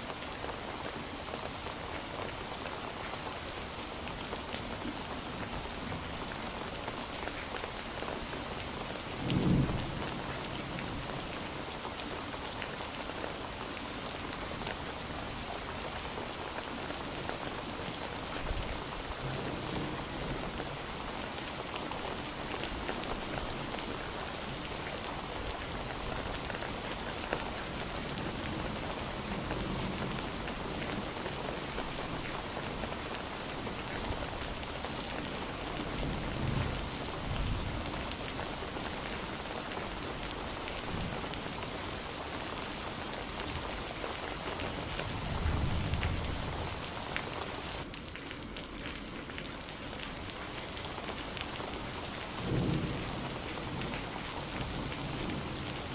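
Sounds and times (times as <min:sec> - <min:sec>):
steady rain falling: 0:00.0 - 0:55.9
thunder rumbling: 0:09.2 - 0:11.3.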